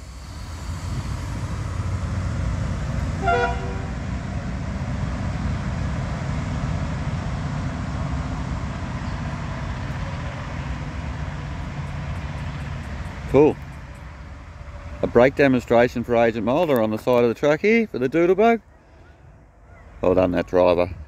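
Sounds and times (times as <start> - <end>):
diesel train engine rumbling: 0.0 - 21.0
train horn toot: 3.1 - 4.1.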